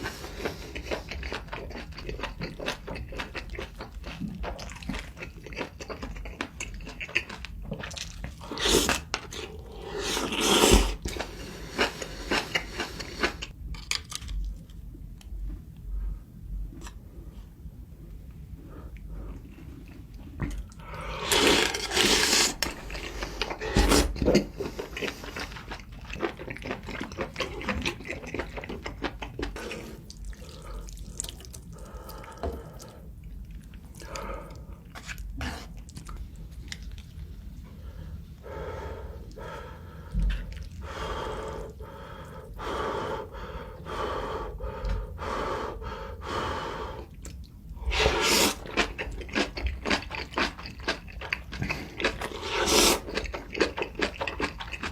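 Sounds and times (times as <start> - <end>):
wet chewing: 0.4 - 14.6, 19.3 - 37.4, 39.3 - 42.6, 47.0 - 54.9
slurping noodles: 8.4 - 13.5, 21.0 - 25.6, 47.8 - 50.3, 51.6 - 53.8.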